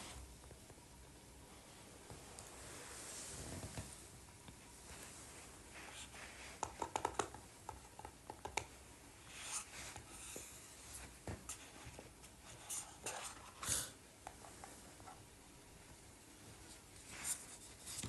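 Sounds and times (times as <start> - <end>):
objects clicking and tapping: 6.6 - 8.7.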